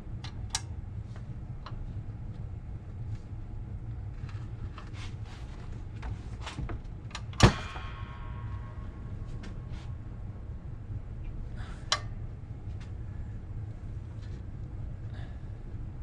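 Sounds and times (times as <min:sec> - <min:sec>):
loud ringing metal clank: 0:07.4 - 0:10.5.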